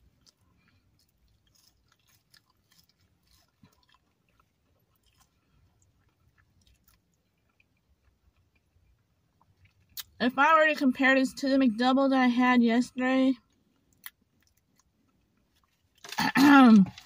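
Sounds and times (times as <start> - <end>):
faint chewing of food: 0.0 - 10.2, 13.4 - 16.2.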